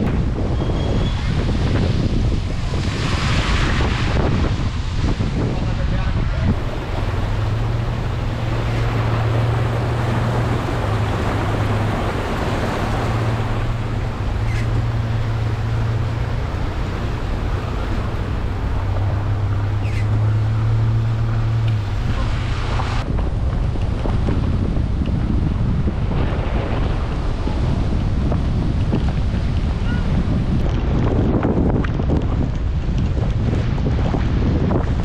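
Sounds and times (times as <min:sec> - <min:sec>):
wind buffeting microphone: 0:00.0 - 0:35.0
steady rain: 0:02.1 - 0:29.8.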